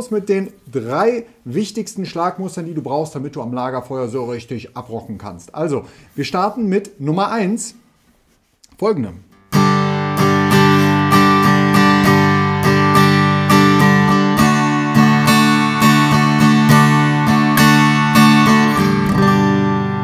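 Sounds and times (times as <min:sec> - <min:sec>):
acoustic guitar strumming: 0:09.3 - 0:20.0.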